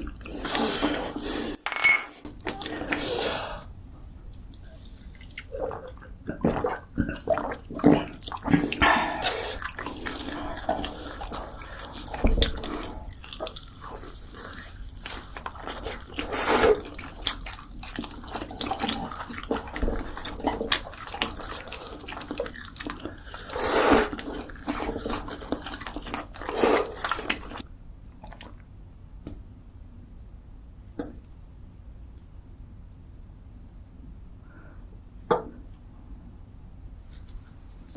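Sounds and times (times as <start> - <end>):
wet chewing and slurping: 4.7 - 27.6.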